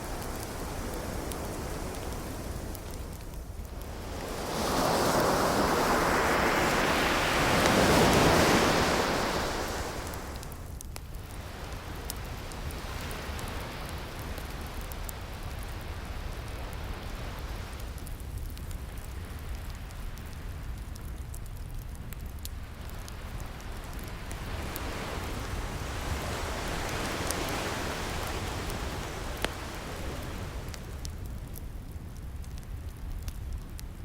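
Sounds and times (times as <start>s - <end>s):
ocean wave breaking: 0.0s - 10.6s, 24.2s - 31.1s
distant surf hiss: 0.0s - 18.1s, 22.6s - 31.6s
fireplace crackle: 0.0s - 34.0s.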